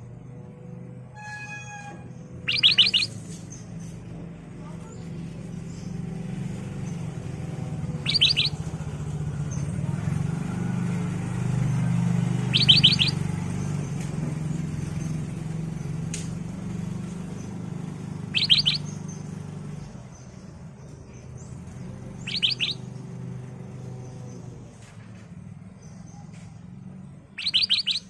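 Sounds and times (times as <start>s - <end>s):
bird calling high notes: 1.1s - 3.2s, 7.9s - 8.7s, 12.3s - 13.2s, 18.2s - 19.0s, 22.2s - 22.9s, 27.3s - 28.0s.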